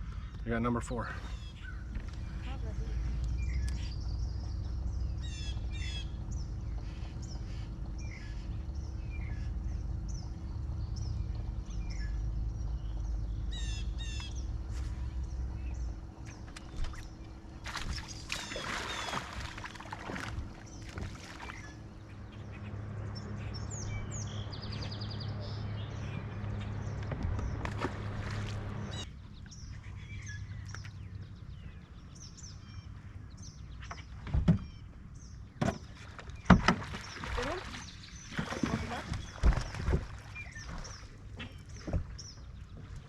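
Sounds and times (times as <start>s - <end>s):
steady low rumble: 0.0s - 33.4s
small birds chirping: 0.0s - 43.0s.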